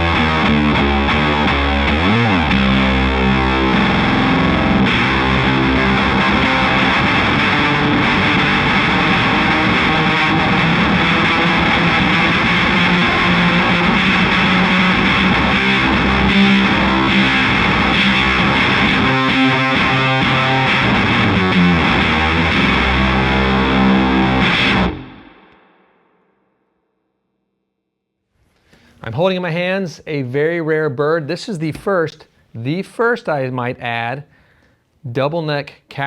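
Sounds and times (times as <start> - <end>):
distorted electric guitar: 0.0 - 26.2.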